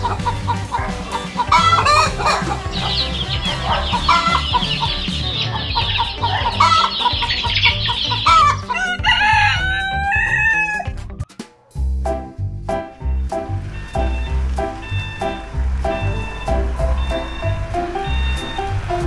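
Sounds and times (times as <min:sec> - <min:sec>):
chicks peeping: 0:00.0 - 0:10.7, 0:12.9 - 0:19.0
hens clucking: 0:00.0 - 0:10.9, 0:13.1 - 0:19.0
rooster crowing: 0:00.0 - 0:10.9
background music with low beat: 0:00.0 - 0:19.0.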